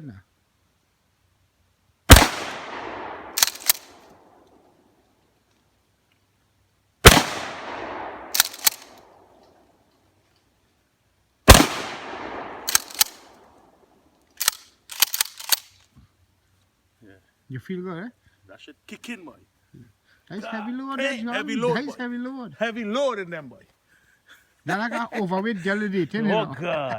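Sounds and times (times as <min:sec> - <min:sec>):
shotgun blasts with echo: 0:02.1 - 0:04.0, 0:07.0 - 0:08.9, 0:11.5 - 0:13.3
shotgun pump clicks: 0:03.3 - 0:04.0, 0:08.2 - 0:09.1, 0:12.6 - 0:13.3, 0:14.4 - 0:15.9.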